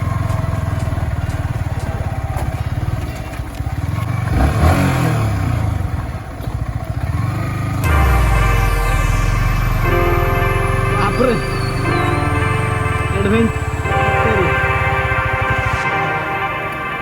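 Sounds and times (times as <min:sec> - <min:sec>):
motorcycle engine running: 0:00.0 - 0:07.8
background music: 0:07.8 - 0:17.0.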